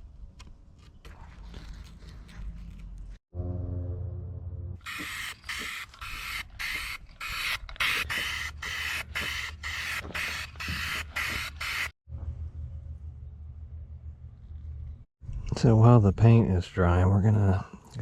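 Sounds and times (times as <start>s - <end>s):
spray paint can hissing: 4.8s - 11.9s.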